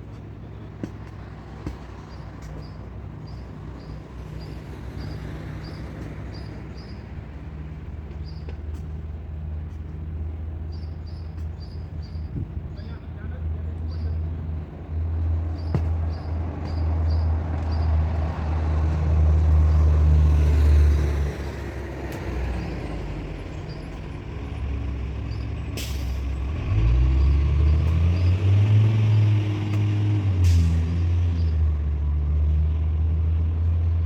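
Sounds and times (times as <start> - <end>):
truck engine revving: 14.5 - 34.0.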